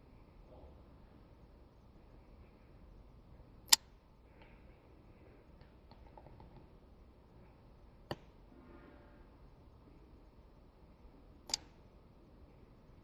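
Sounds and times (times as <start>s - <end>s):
sharp clicks: 11.5s - 11.7s.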